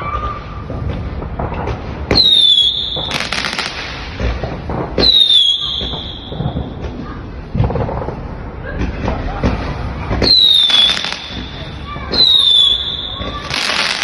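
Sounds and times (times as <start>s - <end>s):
firework crackling: 0.4s - 8.5s, 9.6s - 14.0s
firework whistle: 2.1s - 3.8s, 5.0s - 6.7s, 10.2s - 14.0s.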